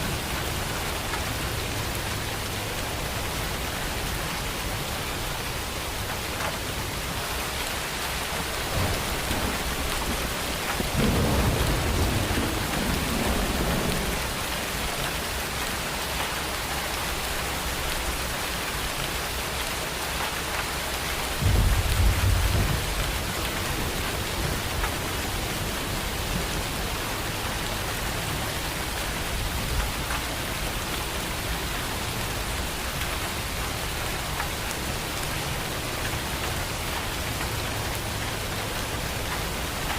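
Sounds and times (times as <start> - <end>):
steady rain falling: 0.0 - 39.9
low thunder rumbles: 8.4 - 15.3, 21.3 - 28.4.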